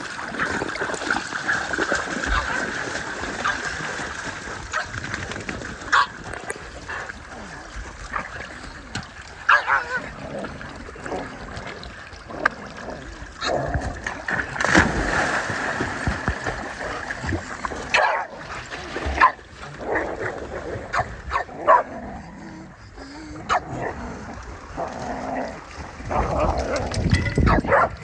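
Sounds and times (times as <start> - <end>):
dogs barking and yipping: 5.9 - 6.2, 9.5 - 10.0, 17.9 - 18.4, 19.2 - 19.4, 20.9 - 21.9, 27.4 - 28.0
dogs whimpering: 22.1 - 23.6.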